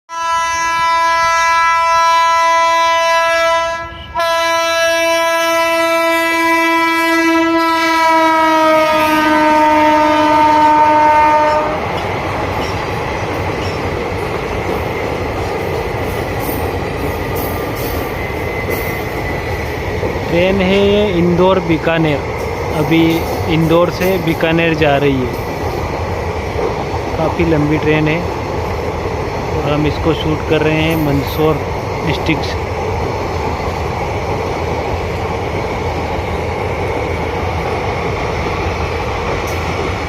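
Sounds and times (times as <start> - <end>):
locomotive horn blasts: 0.1 - 11.8
train coaches rumbling past: 0.1 - 40.0.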